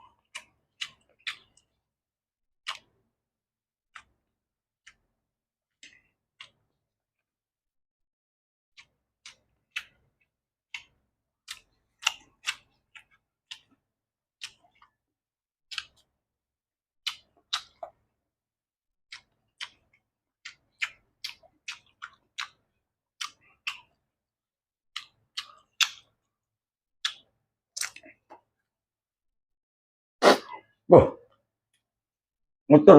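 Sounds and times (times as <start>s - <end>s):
person chewing crunchy vegetables: 0.1s - 1.8s, 2.6s - 2.9s, 8.8s - 13.8s, 14.4s - 15.0s, 15.7s - 16.1s, 17.0s - 18.1s, 19.1s - 24.1s, 24.9s - 26.3s, 27.0s - 28.6s.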